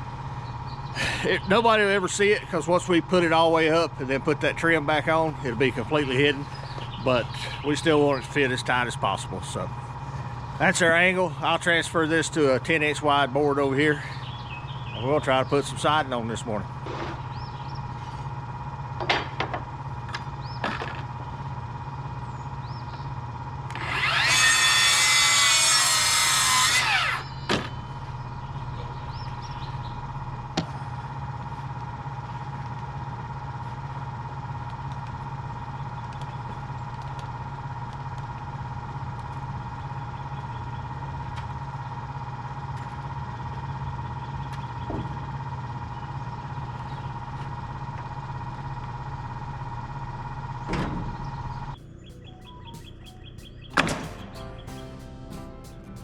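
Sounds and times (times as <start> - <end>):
steady hum: 0.0 - 56.0
power saw cutting wood board: 23.7 - 27.8
sharp knocks: 52.2 - 56.0.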